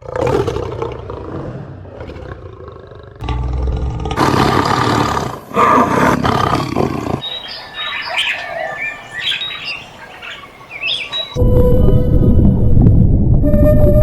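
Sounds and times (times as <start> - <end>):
large animal roaring: 0.0 - 7.2
birds chirping: 6.7 - 11.4.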